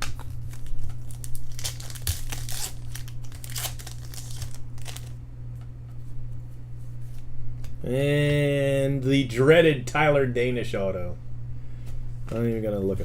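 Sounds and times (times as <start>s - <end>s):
plastic wrapper crinkling and tearing: 0.0s - 5.2s
steady low hum: 0.0s - 13.0s.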